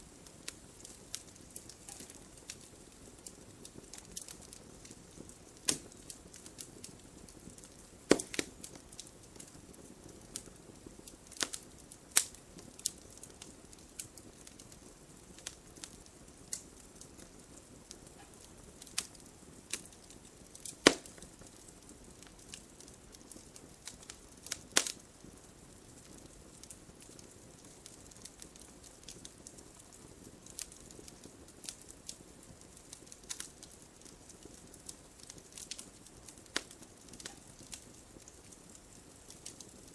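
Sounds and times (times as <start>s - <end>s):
soft steady hiss: 0.0s - 39.9s
wood fire crackling: 0.0s - 39.9s.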